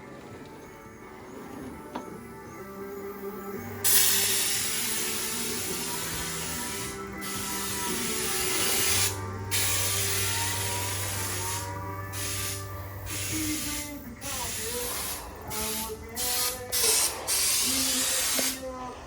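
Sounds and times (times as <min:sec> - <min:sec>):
background music: 0:00.0 - 0:19.0
spray gun hissing: 0:03.8 - 0:18.7.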